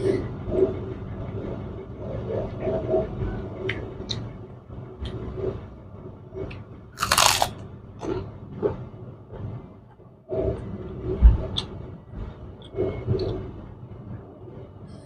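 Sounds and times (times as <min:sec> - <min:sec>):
person chewing: 0:07.0 - 0:07.5
cracker crunching: 0:07.0 - 0:07.6.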